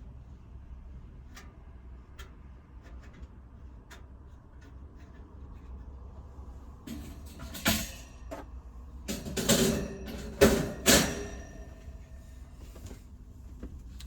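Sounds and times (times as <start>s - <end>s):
objects knocking and clanking: 6.8s - 12.0s.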